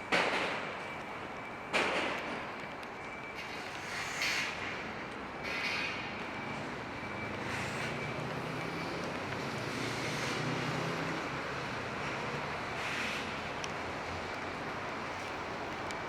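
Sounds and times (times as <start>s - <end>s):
tyres hissing on wet road: 3.4s - 16.0s.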